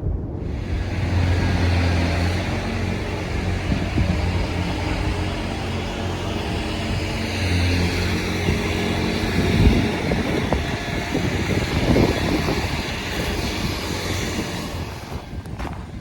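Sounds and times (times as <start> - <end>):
low buffeting rumbles: 0.0 - 16.0
vehicle rumble: 0.0 - 16.0
road or wind hiss: 0.2 - 16.0.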